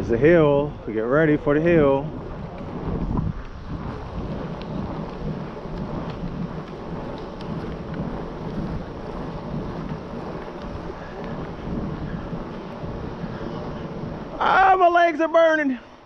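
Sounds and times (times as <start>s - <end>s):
wind buffeting microphone: 0.0s - 16.0s
faint ticks: 4.3s - 13.6s.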